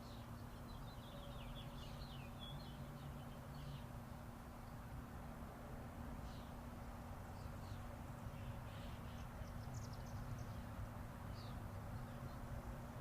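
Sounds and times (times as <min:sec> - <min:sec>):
distant highway traffic rumble: 0:00.0 - 0:13.0
small songbirds chirping: 0:00.0 - 0:13.0.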